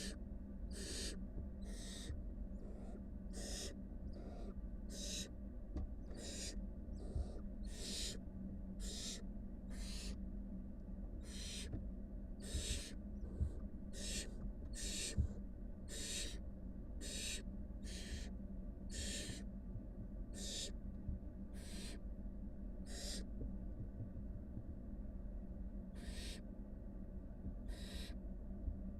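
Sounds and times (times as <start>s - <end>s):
owl nestlings hissing: 0.0s - 5.3s, 6.0s - 8.2s, 8.8s - 10.2s, 11.2s - 11.7s, 12.4s - 15.2s, 15.9s - 16.4s, 17.0s - 18.3s, 18.9s - 19.4s, 20.4s - 20.7s, 21.6s - 22.0s, 22.9s - 23.3s, 26.0s - 26.4s, 27.7s - 28.2s
low electrical hum: 0.0s - 28.9s.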